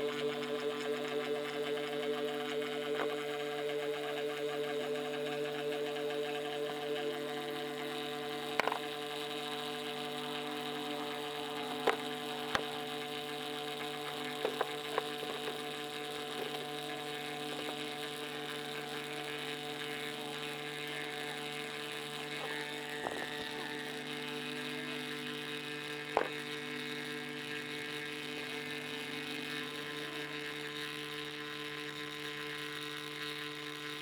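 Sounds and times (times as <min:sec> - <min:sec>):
machine hum: 0:00.0 - 0:34.0
click: 0:03.0 - 0:03.2, 0:08.5 - 0:08.9, 0:11.8 - 0:12.8.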